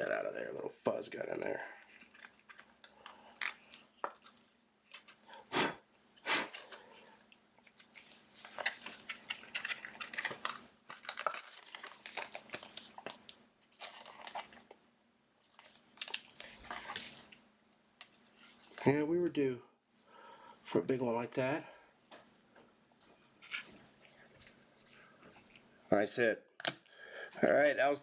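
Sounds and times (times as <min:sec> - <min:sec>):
card rustling in plastic holder: 0:07.6 - 0:14.7, 0:15.5 - 0:17.3.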